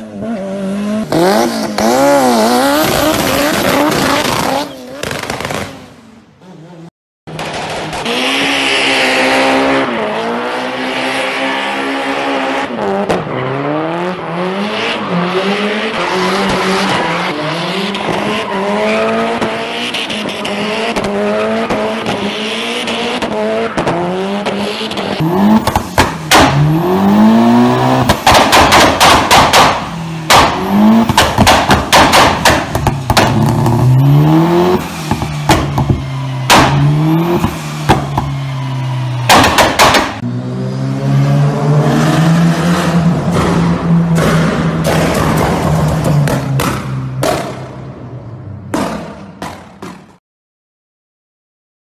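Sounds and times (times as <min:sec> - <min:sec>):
car engine revving hard: 0:00.3 - 0:05.3, 0:07.4 - 0:38.2
exhaust bangs and pops: 0:02.6 - 0:05.8, 0:07.3 - 0:08.1, 0:23.2 - 0:26.8, 0:27.6 - 0:34.0, 0:34.6 - 0:38.4, 0:39.2 - 0:40.2, 0:43.2 - 0:47.8.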